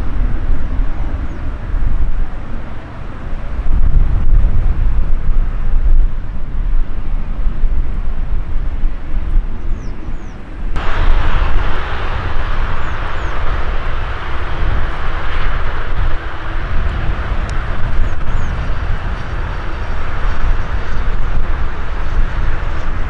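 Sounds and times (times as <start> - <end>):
birds chirping: 10.1 - 23.0
jet engines rumbling: 10.8 - 23.0.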